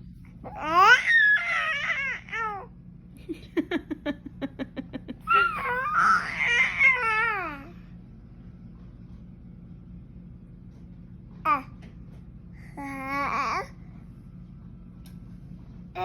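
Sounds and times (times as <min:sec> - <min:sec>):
baby squealing and babbling: 0:00.5 - 0:02.7, 0:05.3 - 0:07.7.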